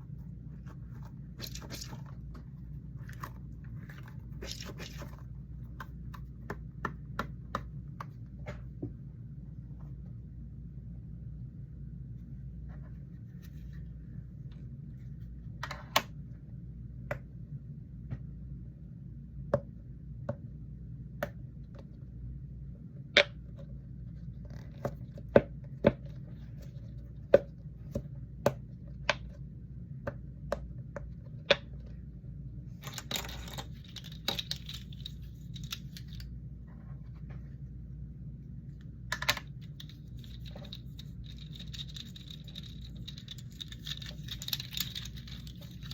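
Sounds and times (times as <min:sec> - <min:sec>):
steady low hum: 0:00.0 - 0:45.9
small objects clicking and tapping: 0:39.1 - 0:45.9.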